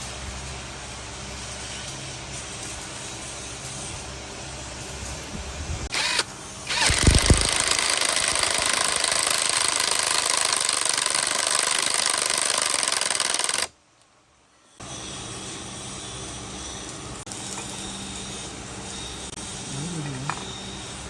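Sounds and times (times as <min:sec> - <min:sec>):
loud power tool running: 0:05.9 - 0:13.7.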